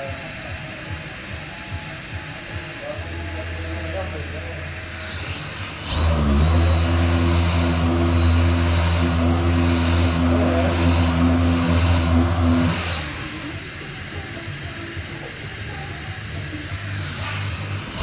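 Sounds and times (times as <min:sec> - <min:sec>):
power sander whining: 0:03.3 - 0:13.9, 0:16.6 - 0:18.0.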